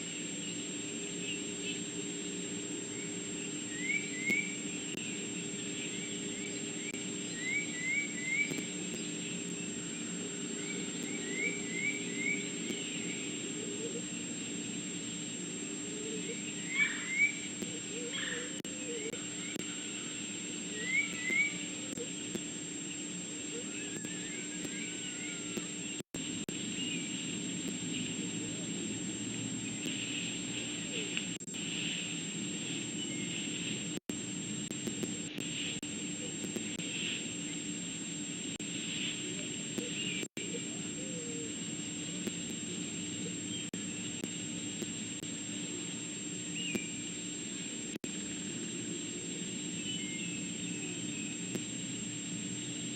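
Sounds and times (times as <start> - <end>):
outdoor hiss: 0.0 - 52.9
bird chirping: 2.9 - 14.0.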